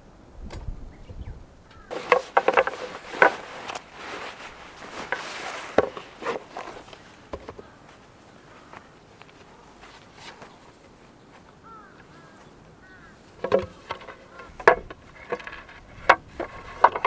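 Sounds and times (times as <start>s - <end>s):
objects knocking and clattering: 1.9s - 7.7s, 13.4s - 17.0s.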